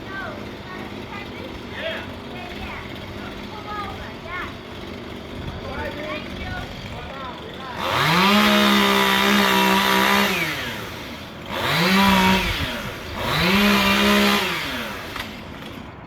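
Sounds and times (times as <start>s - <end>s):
chainsaw revving and idling: 0.0s - 16.0s.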